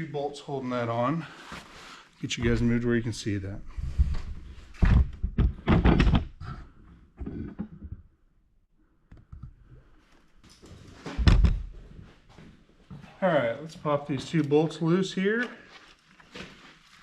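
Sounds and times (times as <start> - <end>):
camera handling knocks and thumps: 4.1 - 6.4.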